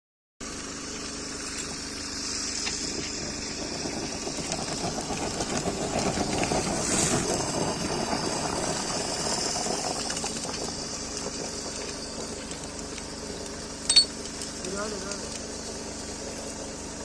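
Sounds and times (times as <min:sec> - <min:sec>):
fire hissing and rumbling: 0:00.4 - 0:17.0.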